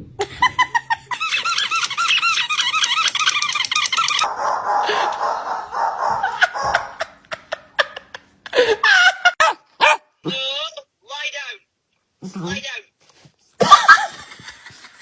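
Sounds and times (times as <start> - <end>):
high squeaky chirps: 1.2 - 4.5
dog barking: 4.2 - 7.1, 9.4 - 10.1.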